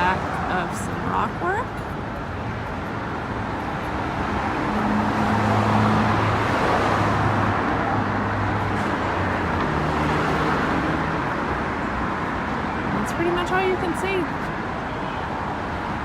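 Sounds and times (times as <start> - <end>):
vehicle passing: 2.4 - 14.6.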